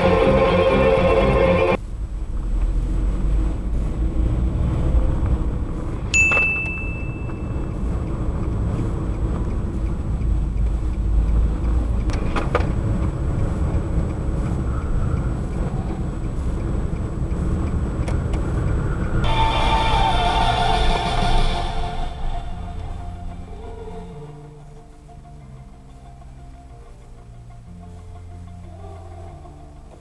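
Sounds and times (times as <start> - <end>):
background music: 0.0 - 1.8, 19.2 - 30.0
car driving rumble inside cabin: 0.0 - 19.3
short high ping: 6.1 - 7.7.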